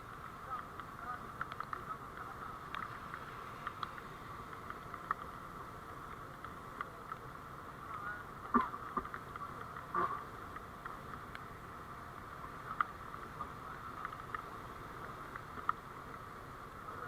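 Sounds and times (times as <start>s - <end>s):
light clicks: 0.1s - 5.4s.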